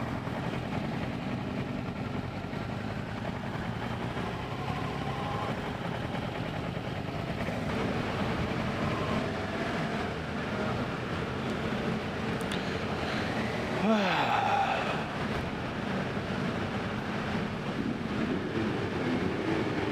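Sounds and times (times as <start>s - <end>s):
motorcycle engine running: 0.0s - 13.8s
road noise: 0.0s - 19.9s.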